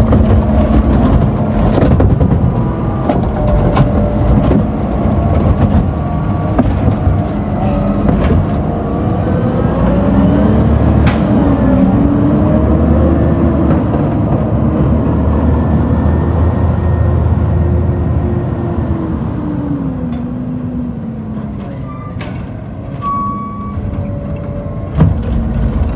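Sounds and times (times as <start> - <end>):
garbage truck engine revving: 0.0 - 23.0
sharp metallic knocks: 6.6 - 11.6.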